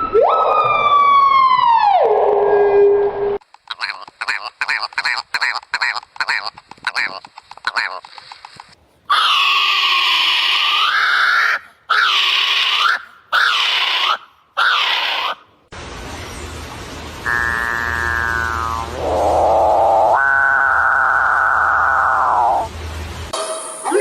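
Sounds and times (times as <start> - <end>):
harsh screeching bird calls: 9.1 - 15.4, 17.2 - 22.7
buzzy pitched call: 17.2 - 22.7.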